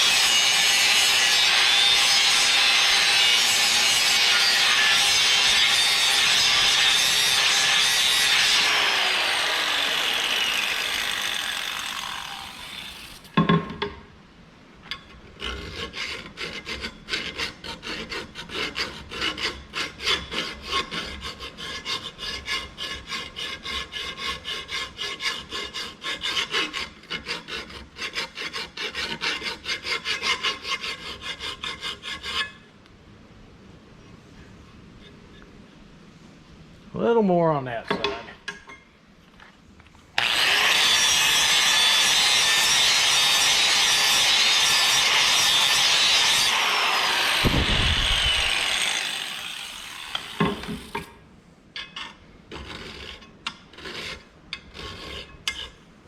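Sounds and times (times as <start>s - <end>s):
electric grinder grinding metal: 0.0s - 13.3s, 40.2s - 50.9s
file rubbing on metal: 15.4s - 32.6s, 53.8s - 55.8s.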